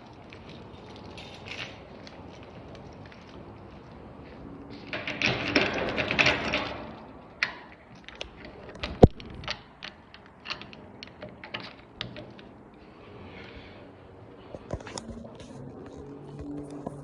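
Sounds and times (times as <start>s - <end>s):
rustling clatter of objects: 0.0s - 17.0s
sharp clicks and light knocks: 4.8s - 12.8s.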